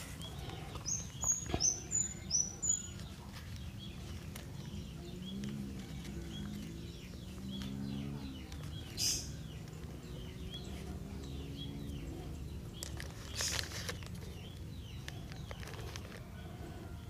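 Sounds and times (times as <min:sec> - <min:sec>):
small bird chirping: 0:00.0 - 0:17.0
wire scraping rustles: 0:12.8 - 0:14.5.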